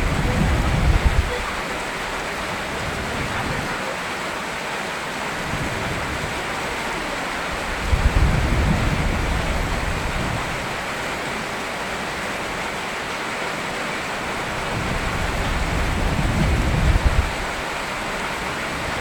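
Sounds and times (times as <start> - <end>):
low rumble of thunder: 0.0 - 1.5, 7.6 - 10.8, 14.5 - 19.0
heavy rain hissing: 0.0 - 19.0.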